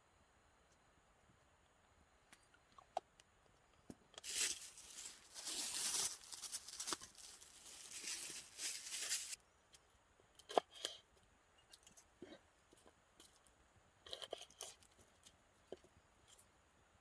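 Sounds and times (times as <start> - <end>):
plastic packaging crinkling: 4.2 - 9.4.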